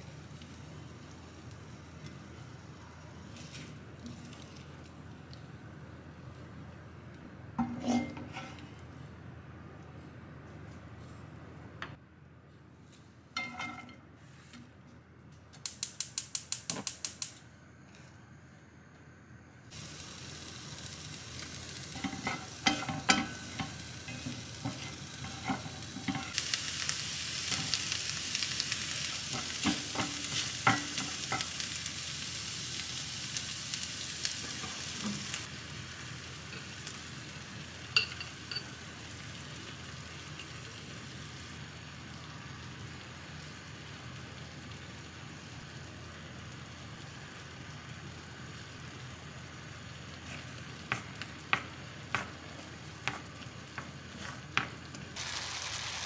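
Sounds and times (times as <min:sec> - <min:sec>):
onions sizzling in a pan: 0:00.0 - 0:05.3, 0:07.6 - 0:09.0, 0:19.7 - 0:56.0
stirring scrapes and knocks: 0:07.6 - 0:08.8, 0:22.0 - 0:26.4.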